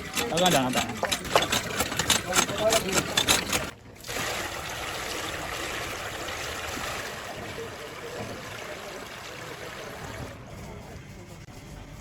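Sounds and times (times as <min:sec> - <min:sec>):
rhythmic machine clatter: 0:00.0 - 0:03.7.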